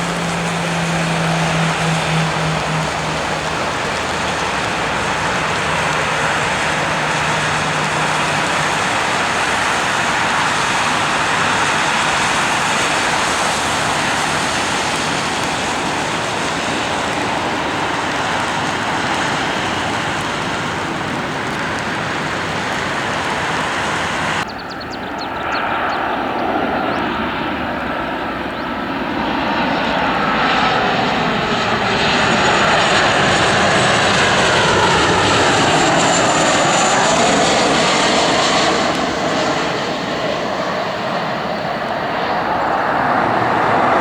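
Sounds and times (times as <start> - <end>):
whining engine falling in pitch: 0.0 - 4.2
airliner engines passing: 0.0 - 44.0.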